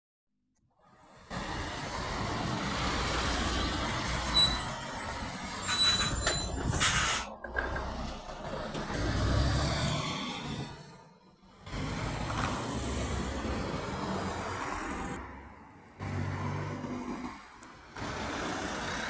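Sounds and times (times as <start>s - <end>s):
road noise: 0.8s - 19.0s
heavy truck engine rumble: 1.0s - 15.4s.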